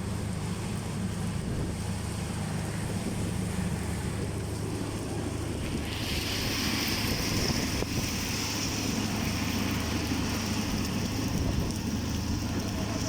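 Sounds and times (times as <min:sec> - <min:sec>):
wind rumbling on microphone: 0:00.2 - 0:13.0
heavy rain pouring: 0:01.2 - 0:13.0.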